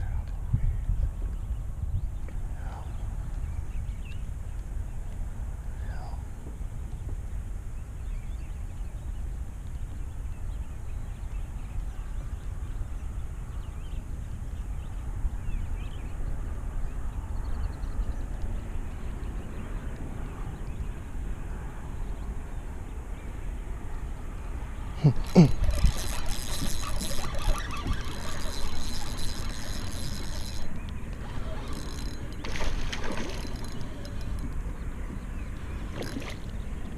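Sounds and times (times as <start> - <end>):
wind buffeting microphone: 0.0 - 36.9
faint bird chirps: 25.0 - 32.1.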